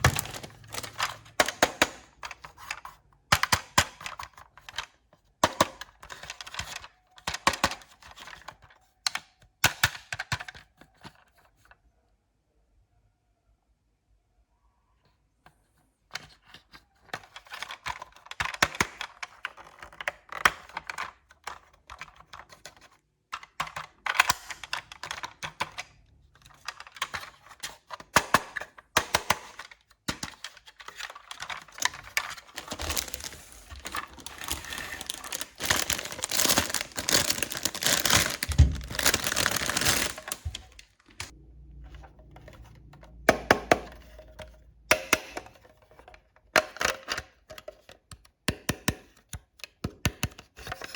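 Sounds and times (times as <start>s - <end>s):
plastic packaging crinkling: 0.0s - 2.8s, 30.2s - 41.3s.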